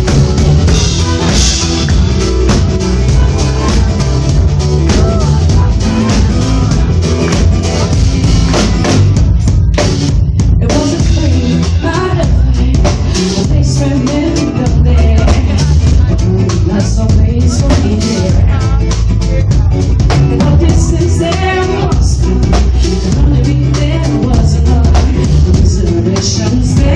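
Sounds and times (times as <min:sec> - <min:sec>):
drum kit pounding: 0:00.0 - 0:26.9
live band music: 0:00.0 - 0:26.9
wordless vocals: 0:00.0 - 0:26.9.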